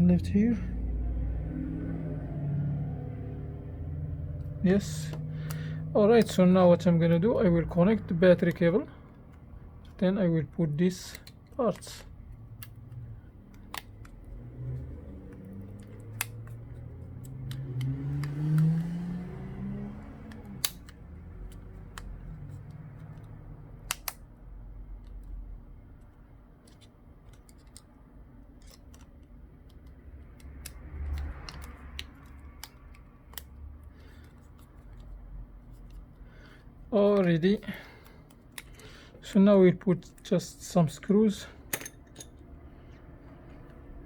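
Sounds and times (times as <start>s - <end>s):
small clicks of phone parts: 4.4s - 7.2s, 8.3s - 19.0s, 20.0s - 39.3s.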